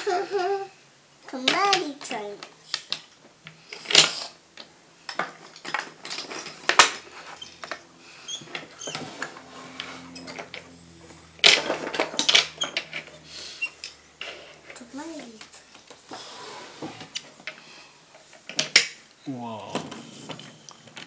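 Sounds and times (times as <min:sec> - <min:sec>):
toy train pieces clattering: 0:11.4 - 0:13.1.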